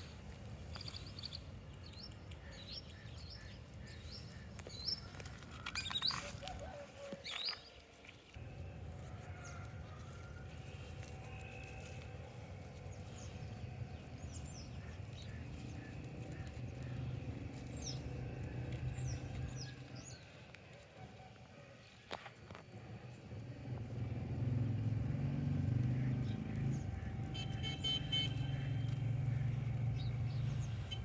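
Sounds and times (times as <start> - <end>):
small birds chirping: 0.0 - 8.2, 10.9 - 20.8, 24.4 - 31.0
low outdoor rumble: 8.4 - 31.0.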